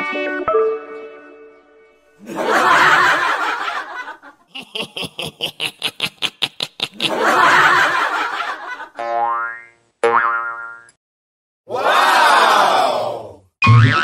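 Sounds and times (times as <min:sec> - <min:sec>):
comic laughter burst: 0:02.2 - 0:09.0.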